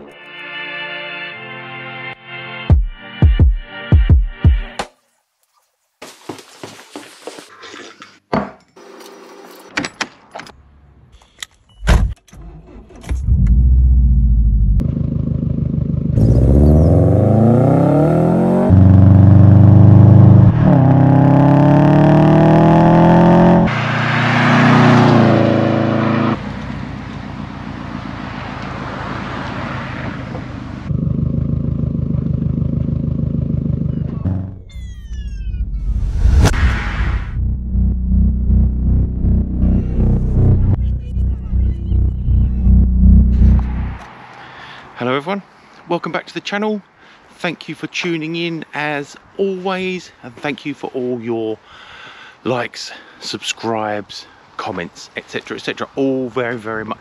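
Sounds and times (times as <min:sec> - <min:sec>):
car engine accelerating: 0:13.1 - 0:44.2.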